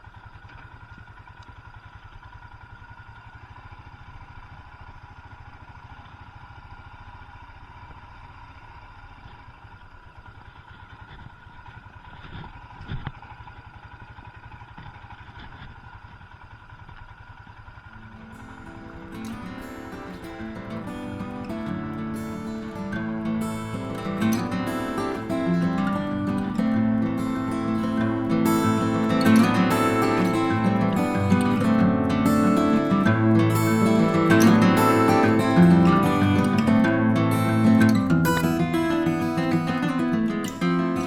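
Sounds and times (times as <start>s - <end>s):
engine knock: 0.0s - 18.3s
motorcycle engine running: 0.0s - 41.0s
acoustic guitar music: 18.0s - 41.0s.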